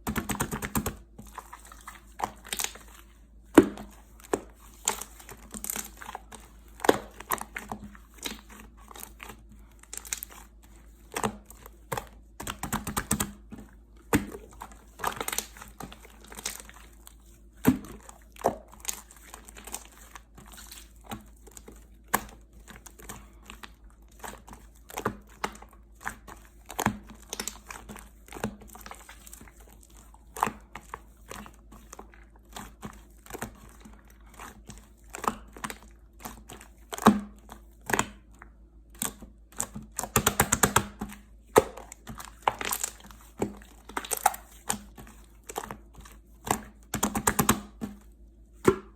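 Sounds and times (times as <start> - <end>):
slime crackling and popping: 2.3 - 2.8, 9.8 - 10.3, 14.1 - 16.8, 24.1 - 27.9, 41.6 - 45.7.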